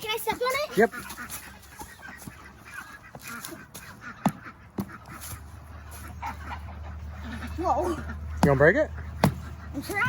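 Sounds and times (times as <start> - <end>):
farm fowl calling: 0.0 - 10.0
pumpkin being stomped thuds: 9.2 - 9.5.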